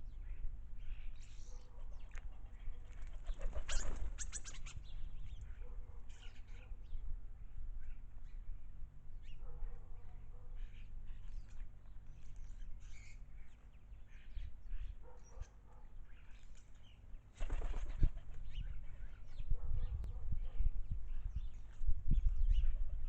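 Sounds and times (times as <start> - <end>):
bird splashing and wing-fluttering: 2.9 - 4.2
birds chirping: 9.2 - 23.0.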